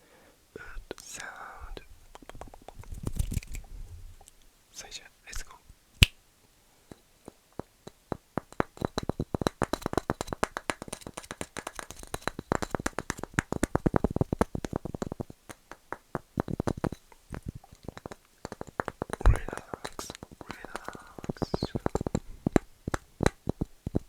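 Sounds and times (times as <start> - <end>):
rapid tapping on wood: 7.3 - 24.0.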